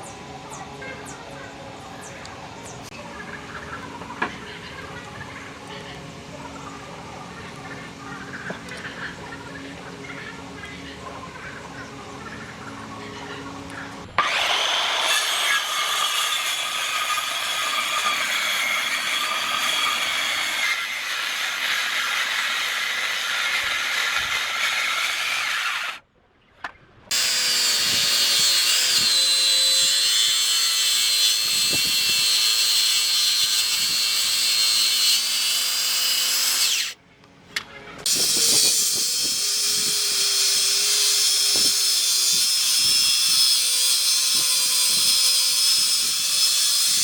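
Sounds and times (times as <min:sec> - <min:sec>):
power tool cutting wood: 0:14.2 - 0:26.0, 0:27.1 - 0:37.0, 0:38.1 - 0:47.0.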